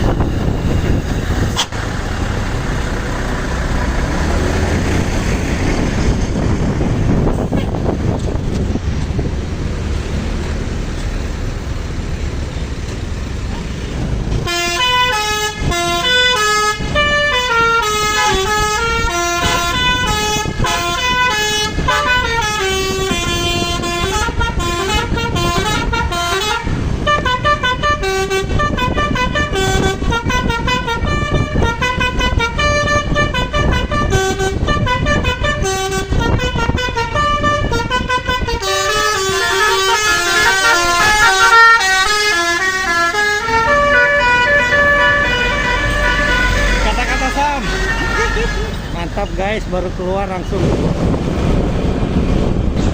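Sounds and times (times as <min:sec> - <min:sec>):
low engine and road noise: 0:00.0 - 0:52.9
multi-tone bus air horn melody: 0:01.5 - 0:01.8, 0:07.2 - 0:08.0, 0:14.4 - 0:48.9.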